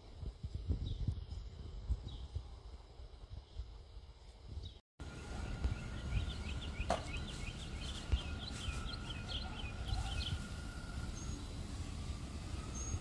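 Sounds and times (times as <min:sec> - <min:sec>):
bird chirping: 0:04.6 - 0:11.6.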